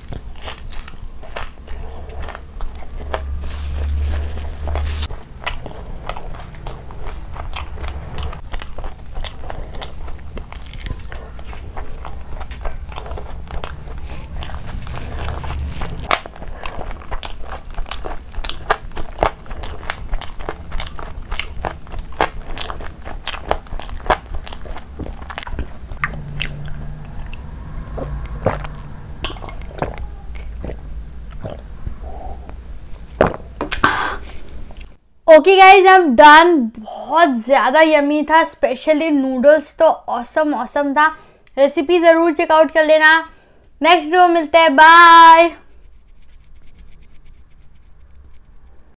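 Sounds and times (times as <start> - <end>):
chewing and crunching food: 0.0 - 32.6.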